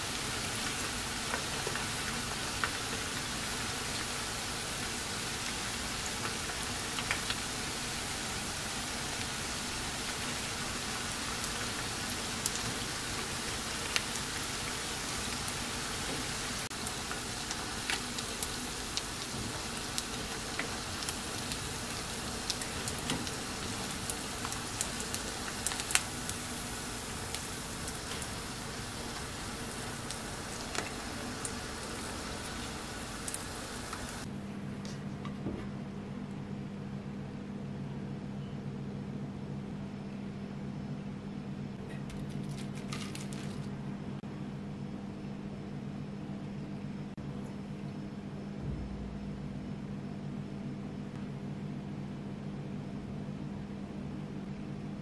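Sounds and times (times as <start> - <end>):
food deep-frying in oil: 0.0 - 34.3
low steady hum: 0.0 - 55.0.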